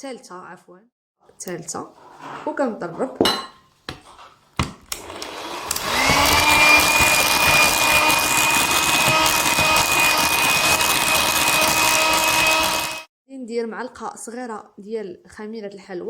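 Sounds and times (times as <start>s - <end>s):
electric mixer whining: 5.0s - 13.1s.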